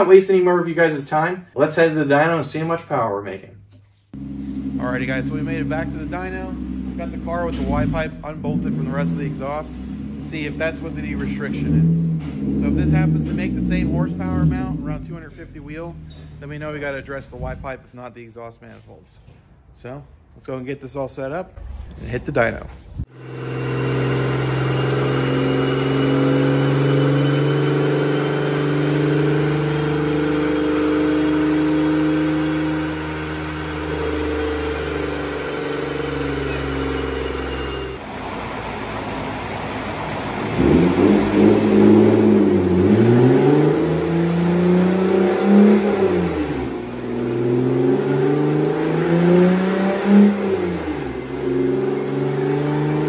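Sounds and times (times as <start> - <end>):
car engine revving: 4.2 - 17.8, 21.5 - 53.0
thin whine: 23.2 - 28.6.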